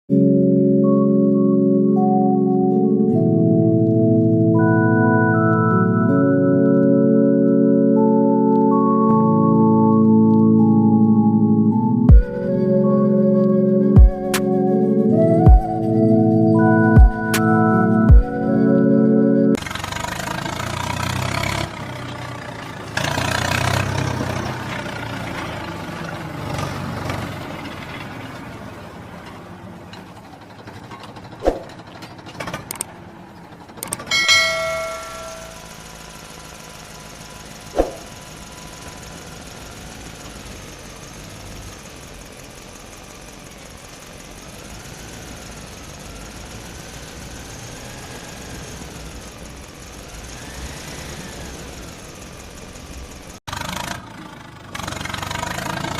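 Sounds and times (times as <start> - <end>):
engine running: 0.8 - 55.9
sharp clicks: 32.4 - 33.0, 33.8 - 34.1.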